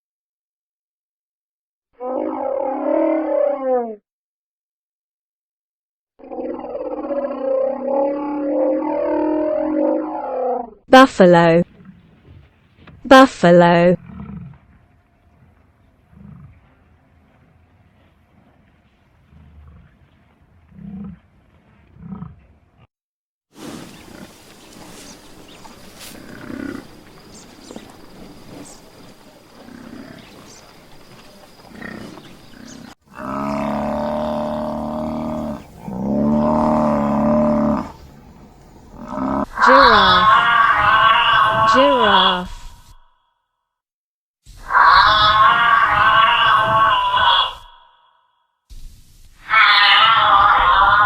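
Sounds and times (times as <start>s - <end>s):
buffalo low calls: 14.0s - 22.5s, 23.8s - 42.4s.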